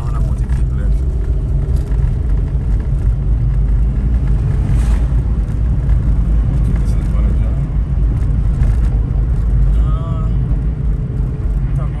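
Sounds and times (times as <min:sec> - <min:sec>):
car driving heard from cabin: 0:00.0 - 0:12.0.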